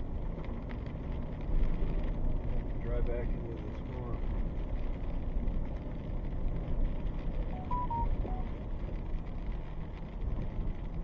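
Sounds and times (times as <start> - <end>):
short electronic beeps: 7.6 - 8.5.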